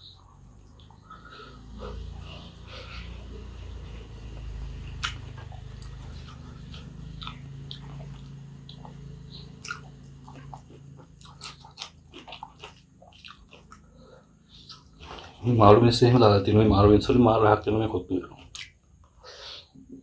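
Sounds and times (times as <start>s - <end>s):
low steady hum: 0.0s - 20.0s
chewing with wet clicks: 0.1s - 2.6s, 3.2s - 15.4s, 18.4s - 19.2s.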